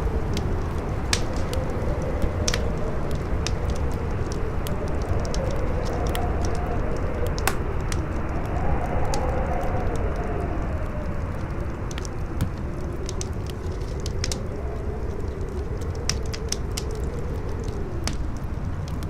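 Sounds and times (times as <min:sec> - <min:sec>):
campfire crackling and popping: 0:00.0 - 0:19.0
strong howling wind: 0:00.0 - 0:19.0.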